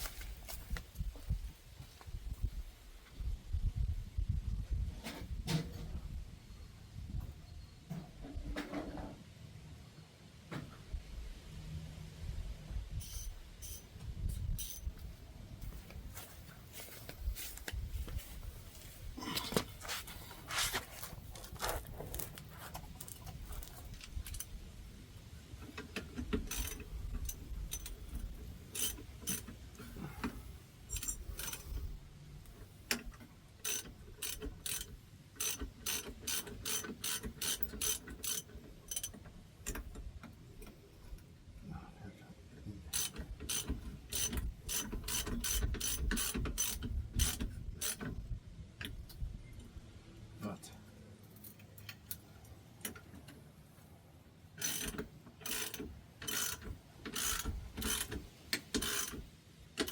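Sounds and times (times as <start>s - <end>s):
ratchet wrench clicking: 13.0s - 13.9s, 25.7s - 29.8s, 30.9s - 31.9s, 32.9s - 39.9s, 42.9s - 48.1s, 54.6s - 59.9s.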